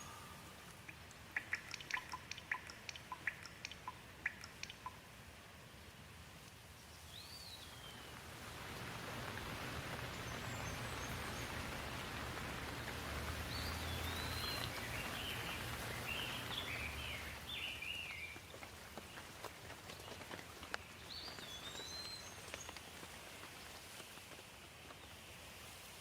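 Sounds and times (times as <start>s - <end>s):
bird chirping: 0.0s - 5.0s, 6.8s - 8.2s, 9.3s - 19.2s, 20.8s - 22.9s
steady rain falling: 0.0s - 26.0s.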